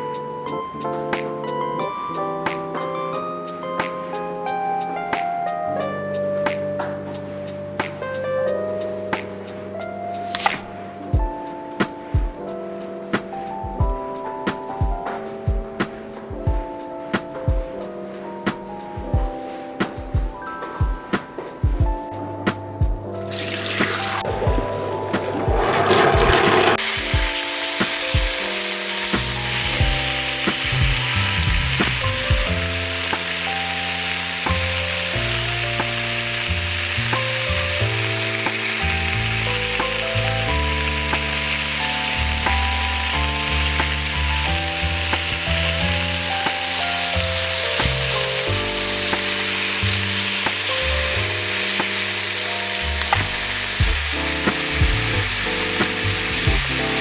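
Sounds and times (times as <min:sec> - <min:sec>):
soft background music: 0:00.0 - 0:57.0
food sizzling in a pan: 0:23.3 - 0:24.4, 0:26.7 - 0:57.0.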